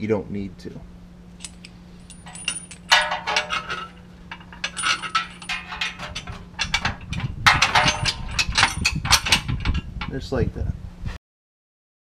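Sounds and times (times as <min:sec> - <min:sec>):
faint low hum: 0:00.0 - 0:11.1
bolts and washers clinking on metal: 0:01.4 - 0:10.2.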